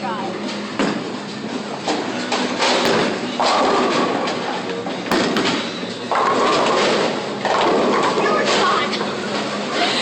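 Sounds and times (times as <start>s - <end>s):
bowling ball rolling: 2.3s - 9.7s
bowling alley din: 2.6s - 9.7s.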